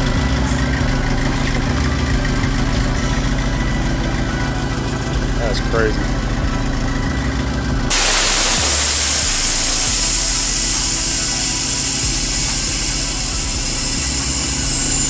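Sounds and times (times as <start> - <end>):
compressed air hissing: 7.9 - 15.0
faint high whistle: 7.9 - 15.0.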